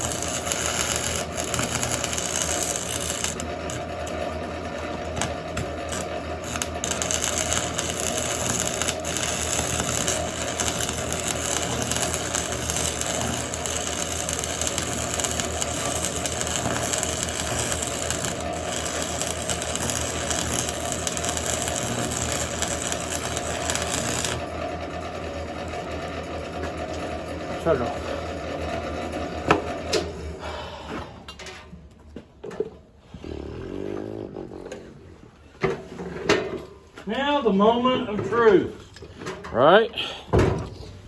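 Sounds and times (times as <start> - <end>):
welding arc crackling: 0.0 - 24.5.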